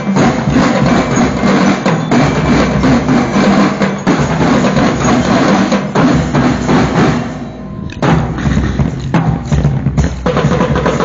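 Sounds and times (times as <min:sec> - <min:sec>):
marching drum band playing: 0:00.0 - 0:11.0.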